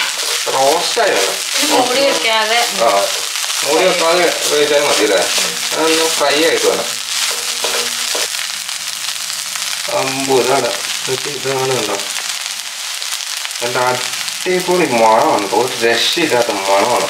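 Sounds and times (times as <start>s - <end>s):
wooden spatula stirring: 0.0s - 8.6s
food sizzling in a pan: 0.0s - 17.0s
person speaking: 0.3s - 7.0s, 13.6s - 17.0s.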